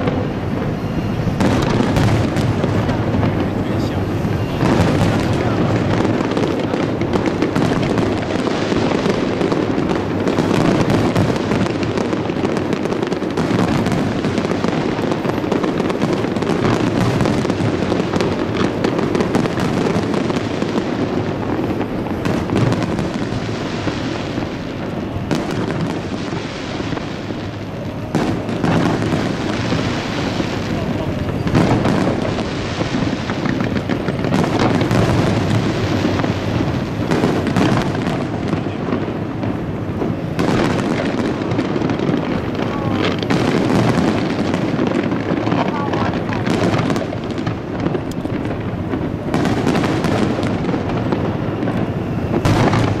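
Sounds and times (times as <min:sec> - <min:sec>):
fireworks booming and crackling: 0:00.0 - 0:53.0.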